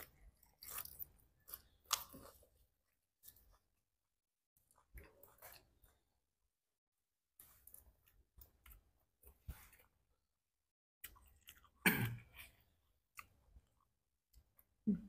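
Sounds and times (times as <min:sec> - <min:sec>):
people chewing shrimp: 0:00.0 - 0:03.8, 0:04.6 - 0:06.3, 0:11.0 - 0:14.9.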